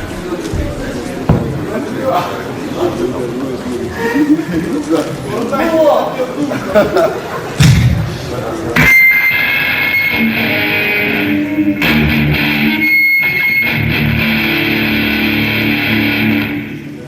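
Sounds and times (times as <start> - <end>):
electric guitar through amplifier: 8.8 - 17.0.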